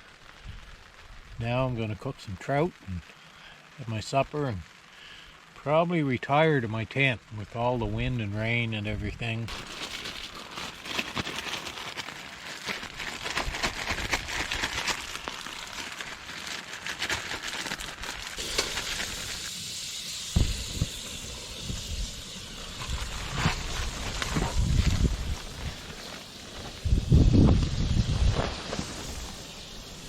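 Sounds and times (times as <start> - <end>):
heavy rain on tarp: 0.0 - 30.0
wind buffeting microphone: 22.8 - 25.9, 26.8 - 29.2.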